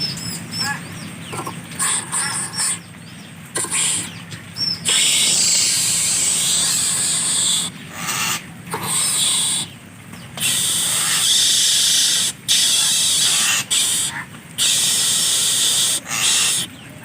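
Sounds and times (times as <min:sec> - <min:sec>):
bird hissing: 0:01.4 - 0:02.8, 0:03.6 - 0:04.2, 0:04.8 - 0:09.8, 0:10.4 - 0:16.7.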